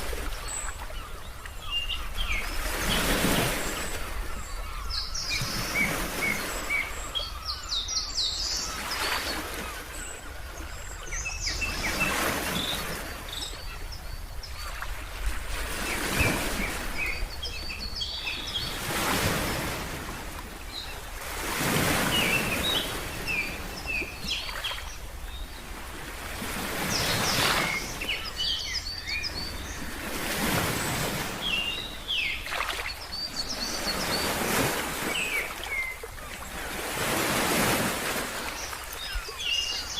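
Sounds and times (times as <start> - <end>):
birds chirping: 0.2 - 20.0, 20.6 - 25.8, 26.4 - 39.9.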